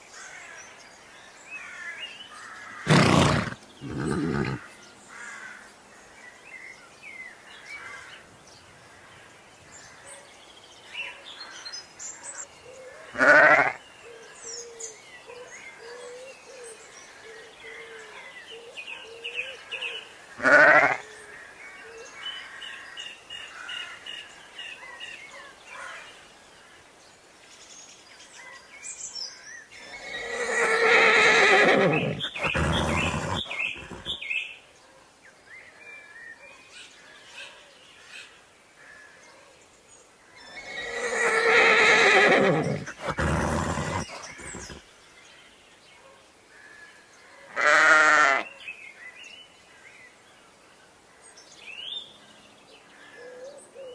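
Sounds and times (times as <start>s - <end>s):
birds chirping faintly: 0.0s - 53.9s
animal calling: 2.7s - 4.7s, 29.8s - 34.2s, 40.5s - 44.8s.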